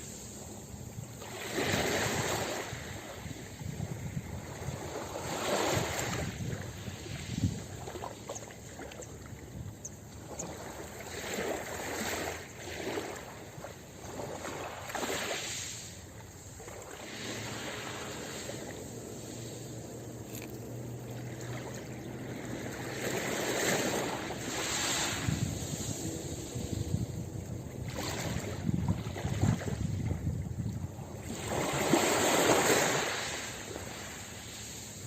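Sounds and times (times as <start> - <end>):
waves breaking on a beach: 0.0 - 35.0.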